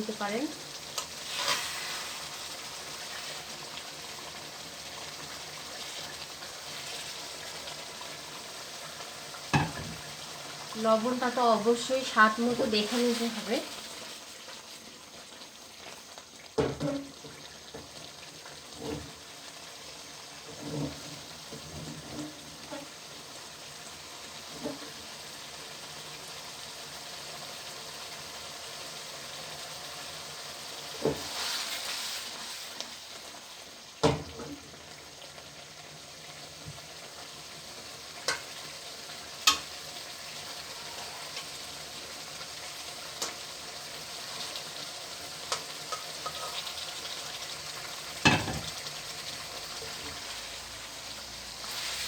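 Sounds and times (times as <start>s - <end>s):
fish frying in oil: 0.0s - 52.0s
metal spatula scraping pan: 1.3s - 2.1s, 45.9s - 46.8s.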